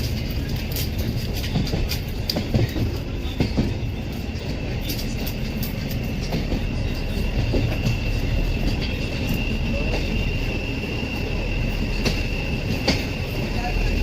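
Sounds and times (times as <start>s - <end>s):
wheels clacking over rail joints: 0.0s - 10.6s, 11.8s - 14.0s
train rumbling on rails: 0.0s - 14.0s
high wheel squeal: 6.0s - 14.0s.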